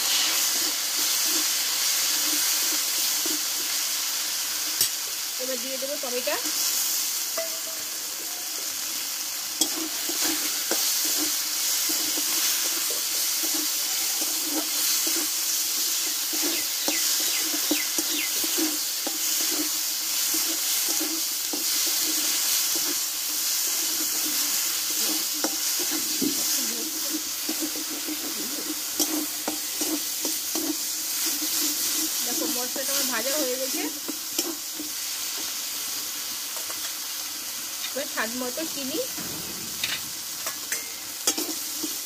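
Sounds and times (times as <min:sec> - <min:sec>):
food sizzling in hot oil: 0:00.0 - 0:42.0
spatula scraping a metal pan: 0:09.6 - 0:35.5, 0:39.1 - 0:42.0.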